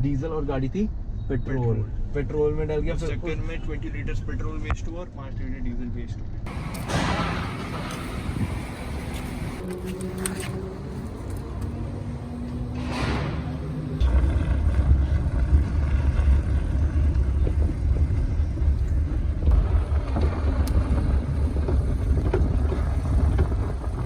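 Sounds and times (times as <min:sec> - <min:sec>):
car engine and road rumble: 0:01.8 - 0:24.0.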